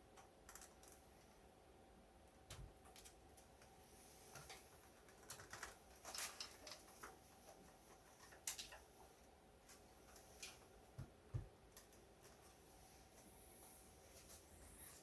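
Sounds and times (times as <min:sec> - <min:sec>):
faint clicks and rattles: 0:00.0 - 0:01.3, 0:02.3 - 0:13.4.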